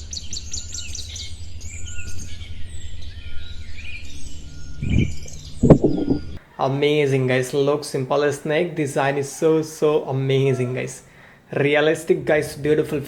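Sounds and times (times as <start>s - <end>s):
steady low hum: 0.0s - 6.6s
small birds chirping: 0.0s - 11.3s
sharp knocks: 4.9s - 6.3s.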